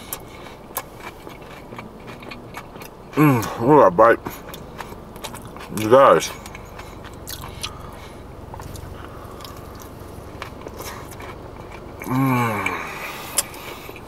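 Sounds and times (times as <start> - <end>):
man chewing crispy food: 0.0 - 14.0.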